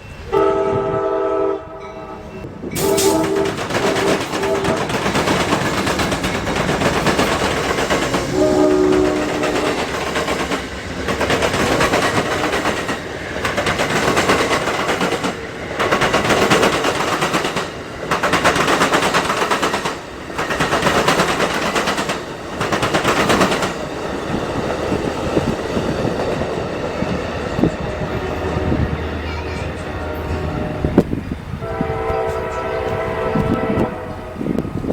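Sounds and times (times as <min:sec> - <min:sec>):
train horn: 0:00.2 - 0:05.2, 0:08.1 - 0:10.0, 0:27.8 - 0:34.7
train wheels clattering: 0:02.4 - 0:34.9.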